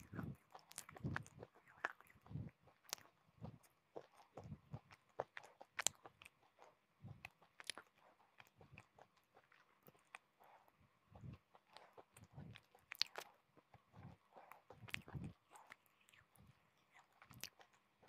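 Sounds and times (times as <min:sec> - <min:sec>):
chewing hard crunchy pieces: 0:00.0 - 0:18.0.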